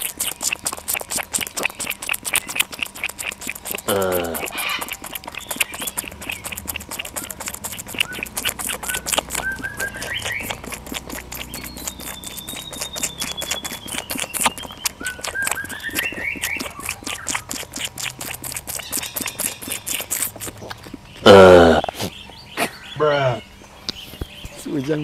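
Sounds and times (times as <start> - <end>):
fast steady clicking: 0.0 - 21.0
rising bird whistles: 8.0 - 10.6, 11.5 - 17.4.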